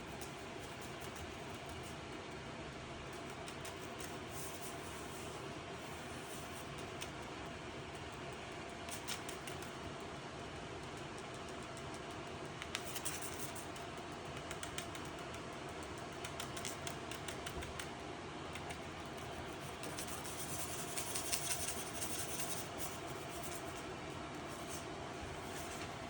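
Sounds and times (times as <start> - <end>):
steady low hum: 0.0 - 26.0
light clicks and ticks: 6.7 - 20.1.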